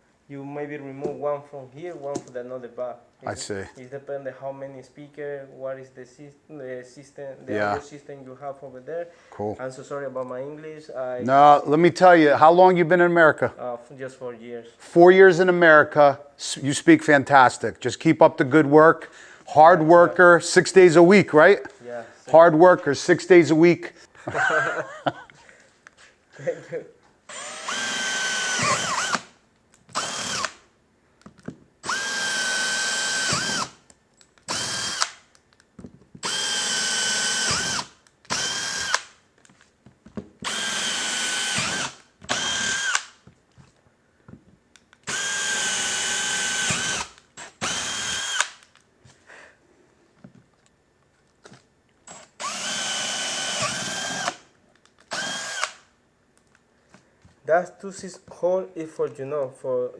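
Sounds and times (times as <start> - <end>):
drill trigger blip: 27.3 - 29.3, 31.8 - 33.7, 34.4 - 35.2, 36.2 - 39.1, 40.4 - 43.2, 45.0 - 48.7, 52.1 - 54.4, 55.1 - 55.8
power drill whining: 27.3 - 29.3, 29.9 - 30.6, 31.8 - 33.8, 34.4 - 35.2, 36.2 - 39.1, 40.4 - 43.2, 45.0 - 48.6, 52.1 - 54.4, 55.1 - 55.9.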